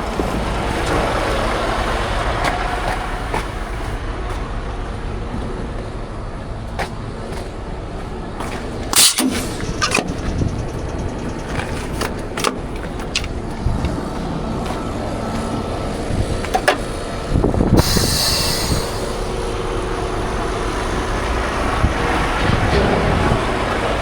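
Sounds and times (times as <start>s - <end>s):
truck engine rumbling: 0.0s - 24.0s
air hiss: 8.9s - 10.2s, 17.7s - 20.0s.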